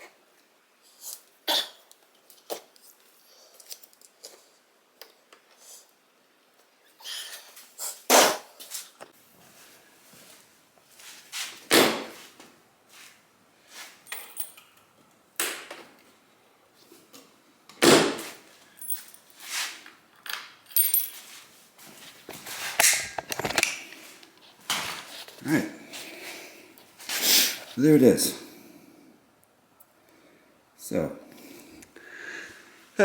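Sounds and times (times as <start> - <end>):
tools and metal parts clattering: 14.0 - 14.8, 18.8 - 19.4, 20.2 - 21.4, 22.7 - 23.7.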